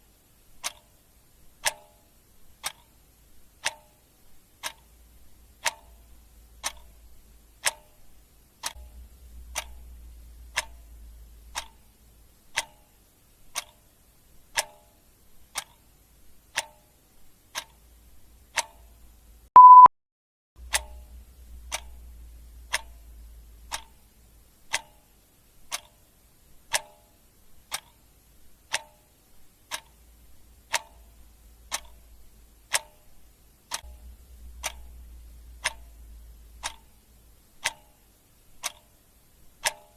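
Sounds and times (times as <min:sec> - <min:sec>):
clock ticking: 0:00.5 - 0:19.9, 0:20.6 - 0:39.9
short high beep: 0:19.6 - 0:19.9.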